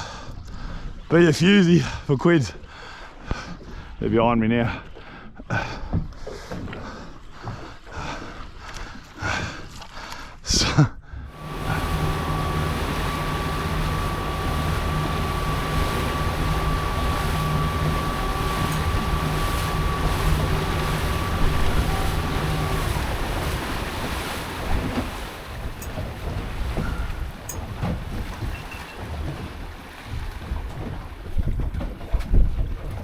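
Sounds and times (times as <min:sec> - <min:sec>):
water lapping: 0:00.0 - 0:10.4, 0:11.3 - 0:33.0
boat motor whining: 0:11.3 - 0:31.2
wind on microphone: 0:30.1 - 0:33.0.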